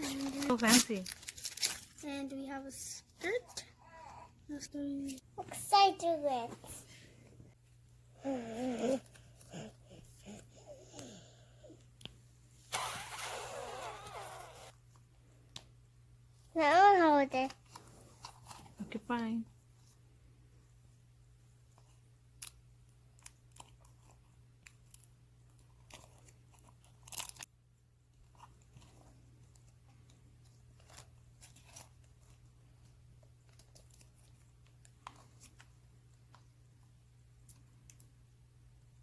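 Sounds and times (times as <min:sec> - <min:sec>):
plastic toy packaging crinkling: 0:00.0 - 0:02.1.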